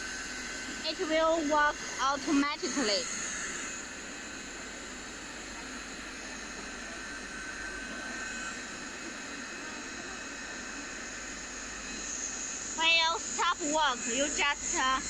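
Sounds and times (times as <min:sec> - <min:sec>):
hot air welding machine blowing: 0:00.0 - 0:15.0.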